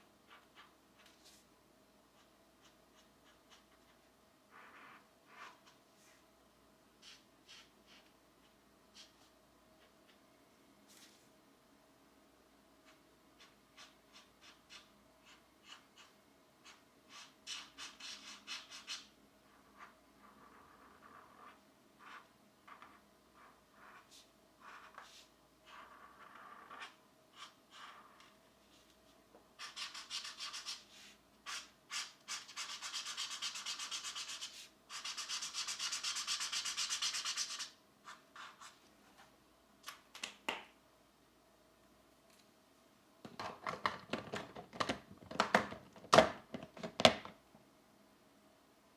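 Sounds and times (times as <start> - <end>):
pencil scratching on paper: 2.2 - 6.2, 13.4 - 28.3, 29.6 - 38.8.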